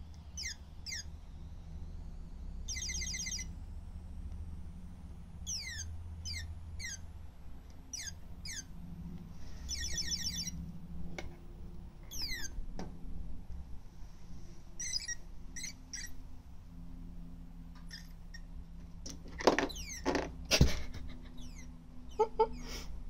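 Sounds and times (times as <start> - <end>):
toy bird chirping: 0.2 - 1.2, 2.6 - 3.5, 5.4 - 7.1, 7.9 - 8.7, 9.7 - 10.6, 12.1 - 12.6, 14.8 - 16.2, 17.8 - 18.5, 19.7 - 20.0, 21.3 - 22.7.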